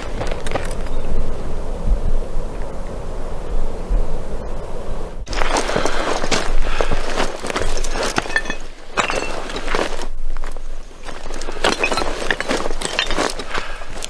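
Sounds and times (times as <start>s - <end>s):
footsteps crunching undergrowth: 0.0s - 1.1s, 5.3s - 14.0s.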